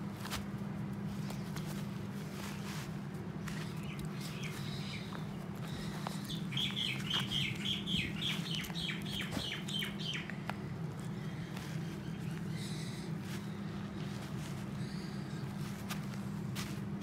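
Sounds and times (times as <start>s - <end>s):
steady low hum: 0.0s - 17.0s
bird chirping: 3.5s - 14.2s.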